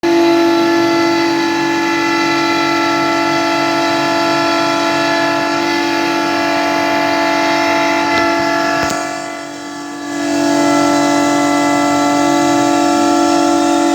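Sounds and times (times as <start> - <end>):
router spindle high whine: 0.0 - 13.9
wood cutting noise: 0.0 - 13.9.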